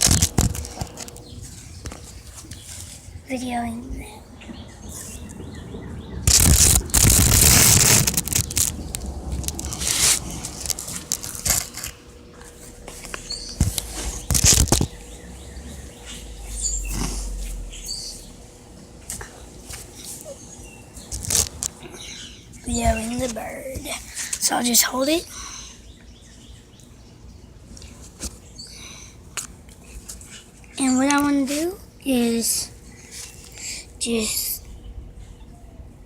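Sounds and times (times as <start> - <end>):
faint bird chirps: 13.1 - 18.5.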